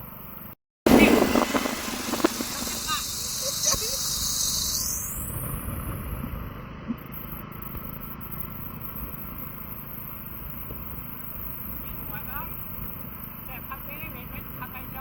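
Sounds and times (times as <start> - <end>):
low rumble of street traffic: 0.0 - 15.0
wind buffeting microphone: 0.9 - 3.3.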